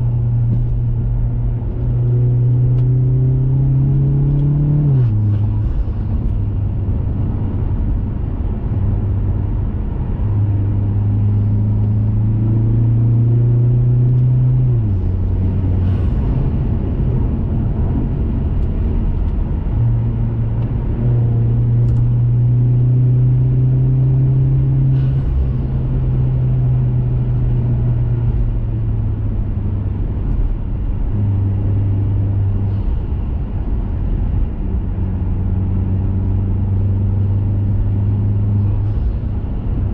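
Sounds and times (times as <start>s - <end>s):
car engine drone while driving: 0.0s - 39.9s
road noise hiss: 4.9s - 12.3s, 14.7s - 20.5s, 24.7s - 26.9s, 32.2s - 35.6s, 36.2s - 39.9s.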